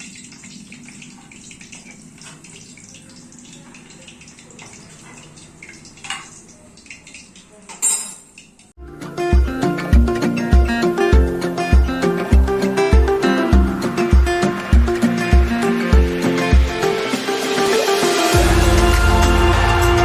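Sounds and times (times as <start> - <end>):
food frying in hot oil: 0.0 - 7.7.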